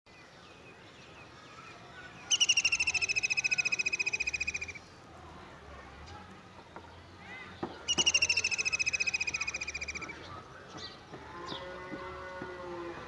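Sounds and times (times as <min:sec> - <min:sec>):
faint bird chirps: 0:00.2 - 0:04.9, 0:07.2 - 0:10.4
bird's loud fast trill: 0:02.3 - 0:04.8, 0:07.9 - 0:10.1.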